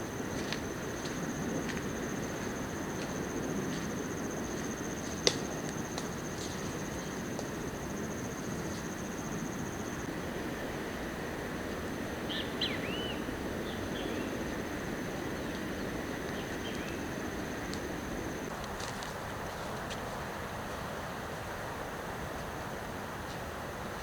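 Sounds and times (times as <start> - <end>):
high insect trill: 0.0 - 18.6.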